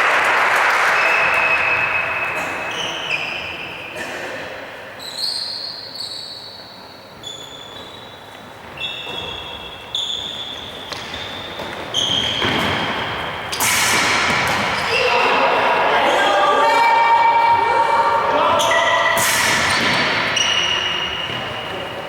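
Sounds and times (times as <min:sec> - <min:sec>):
shoes squeaking on floor: 0:01.1 - 0:04.0, 0:05.0 - 0:13.7, 0:14.3 - 0:15.3, 0:18.4 - 0:22.0.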